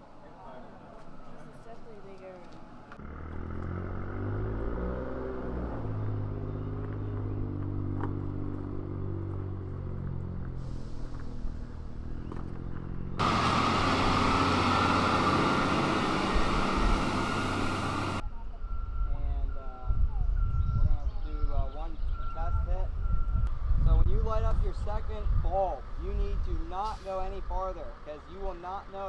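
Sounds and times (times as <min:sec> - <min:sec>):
pickup truck engine idling: 0:13.2 - 0:18.2.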